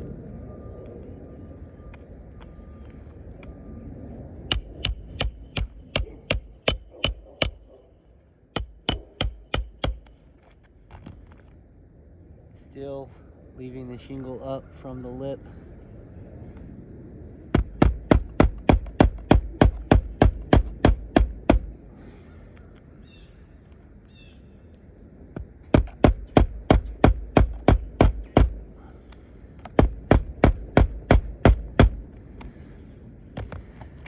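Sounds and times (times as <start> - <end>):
hammer striking nails: 4.5 - 7.9, 8.6 - 10.4, 17.5 - 21.8, 25.7 - 28.7, 29.6 - 32.1.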